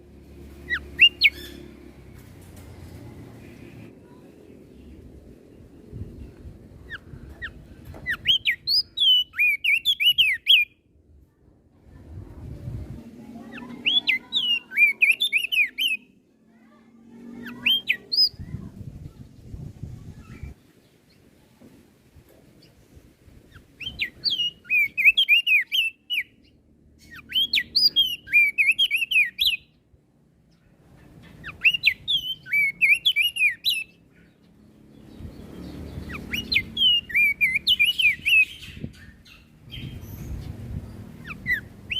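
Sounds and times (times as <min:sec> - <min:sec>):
faint low background noise: 0:00.0 - 0:41.9
bird singing swooping chirps: 0:00.6 - 0:01.8, 0:06.9 - 0:10.8, 0:13.4 - 0:16.2, 0:17.3 - 0:18.6, 0:23.5 - 0:29.8, 0:31.2 - 0:41.9.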